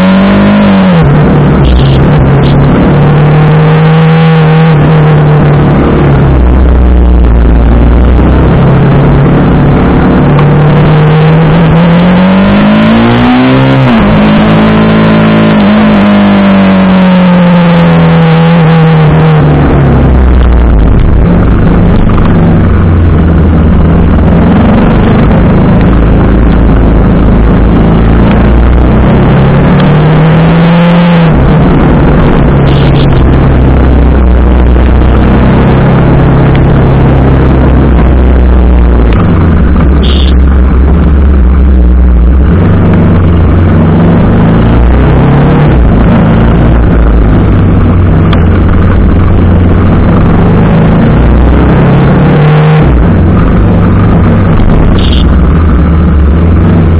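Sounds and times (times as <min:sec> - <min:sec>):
motorcycle engine running: 0:00.0 - 0:56.9
loud rushing noise: 0:36.0 - 0:56.9.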